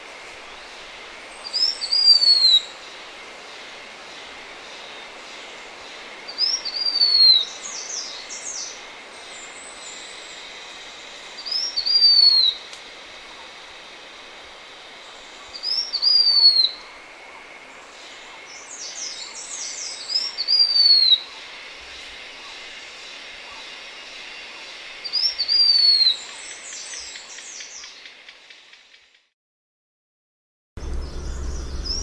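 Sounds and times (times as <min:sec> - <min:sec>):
faint steady hiss: 0:00.0 - 0:29.3
bird singing whistled phrases: 0:11.6 - 0:12.6, 0:15.7 - 0:16.8, 0:25.1 - 0:26.2.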